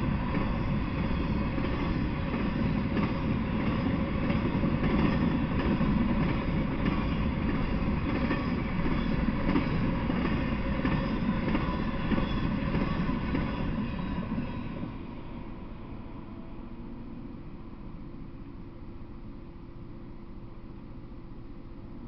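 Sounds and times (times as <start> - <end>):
train wheels rolling on rails: 0.0 - 15.9
faint rail clacks: 0.2 - 14.8.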